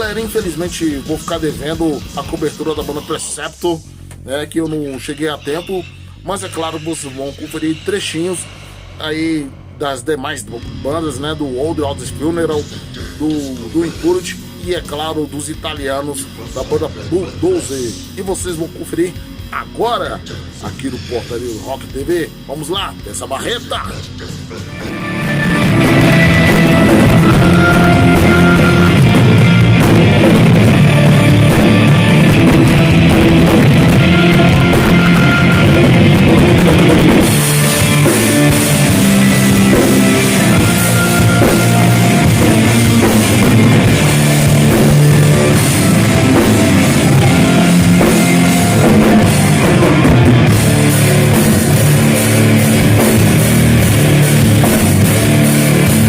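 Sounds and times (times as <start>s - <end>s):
pounding drum kit: 0.0s - 3.2s, 10.6s - 56.0s
heavy metal band playing live: 23.4s - 56.0s
electric guitars: 24.6s - 56.0s.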